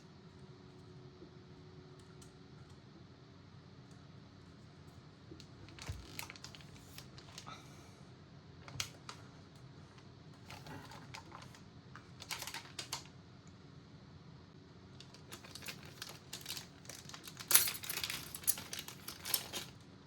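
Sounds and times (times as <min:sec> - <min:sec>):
low steady hum: 0:00.0 - 0:20.0
small parts clicking and tapping: 0:15.0 - 0:19.8.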